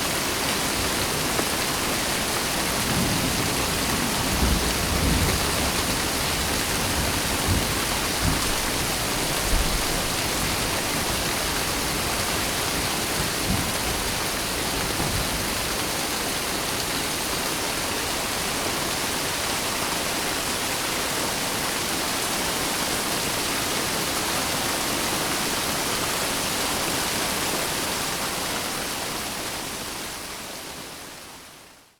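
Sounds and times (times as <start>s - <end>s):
heavy rain hissing: 0.0s - 20.2s.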